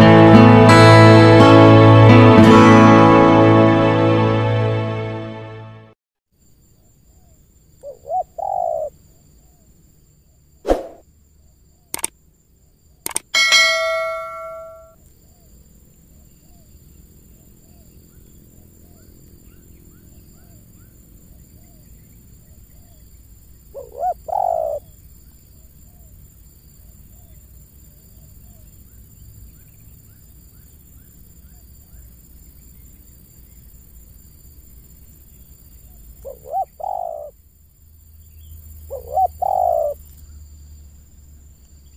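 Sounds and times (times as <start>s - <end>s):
small birds chirping: 6.8s - 9.7s, 17.7s - 26.2s, 35.0s - 37.3s, 38.1s - 41.9s
dove cooing: 7.8s - 8.9s, 23.8s - 24.9s, 36.2s - 37.3s, 38.9s - 40.0s
ringing metallic clang: 13.4s - 15.0s.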